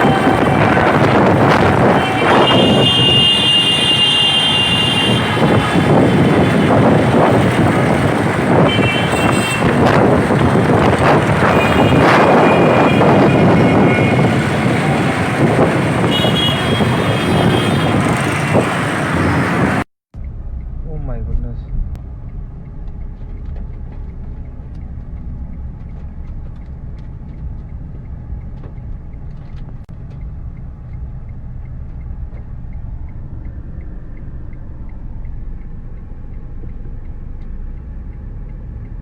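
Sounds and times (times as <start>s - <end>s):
vehicle horns: 0.0s - 19.8s
gusty wind on microphone: 0.0s - 20.6s
road traffic: 0.0s - 39.0s.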